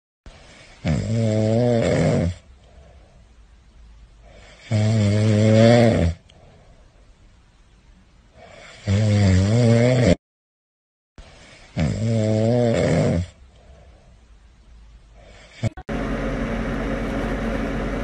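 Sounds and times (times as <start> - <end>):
faint breathing: 0.3 - 0.9, 2.4 - 3.5, 4.2 - 4.7, 6.2 - 7.3, 8.3 - 8.9, 11.2 - 11.8, 13.4 - 14.4, 15.1 - 15.8
puppy snoring: 0.5 - 2.5, 4.2 - 6.3, 8.4 - 10.2, 11.5 - 13.4, 15.2 - 15.8.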